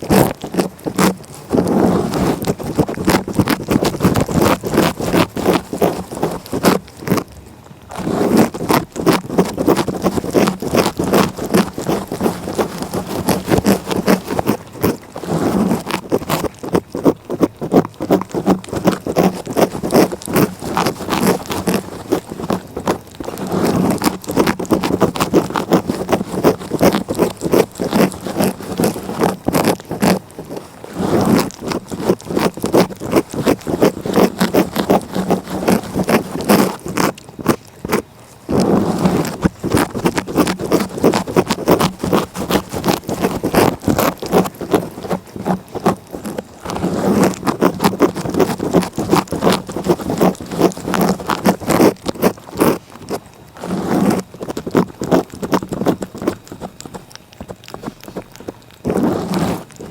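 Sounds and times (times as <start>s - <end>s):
cat licking rasping: 0.0s - 59.9s.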